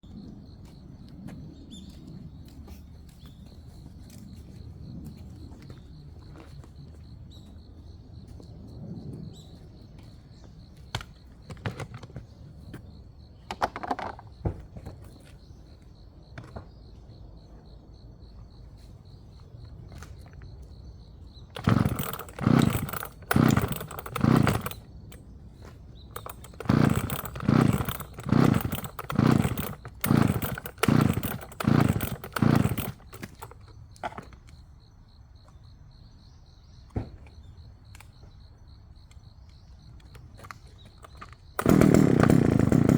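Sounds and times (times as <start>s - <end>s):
firewood sawn by hand: 21.6s - 24.8s, 26.2s - 33.6s, 41.6s - 42.9s.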